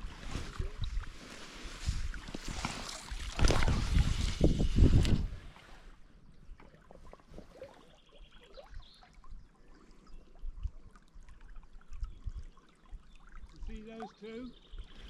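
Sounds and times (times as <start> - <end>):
river water trickling and lapping: 0.0 - 15.0
small splashes: 2.0 - 5.8.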